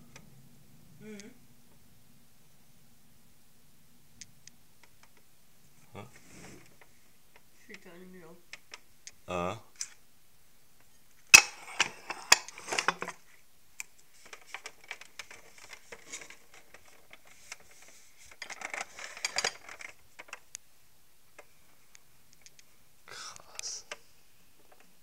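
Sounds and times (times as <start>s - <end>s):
small hard objects clattering: 14.1s - 20.5s.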